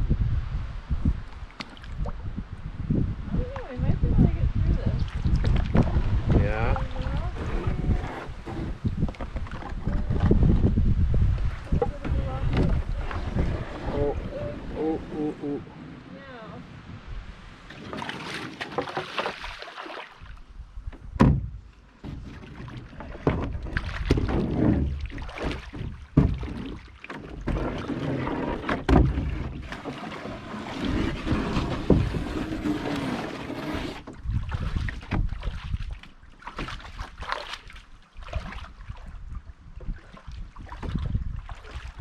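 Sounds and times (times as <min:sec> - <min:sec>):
water splashing and sloshing: 0:01.0 - 0:42.0
canoe scraping on rocks: 0:05.7 - 0:16.5, 0:17.6 - 0:19.7, 0:22.0 - 0:34.7
knocks against canoe hull: 0:20.9 - 0:30.1, 0:34.9 - 0:35.4.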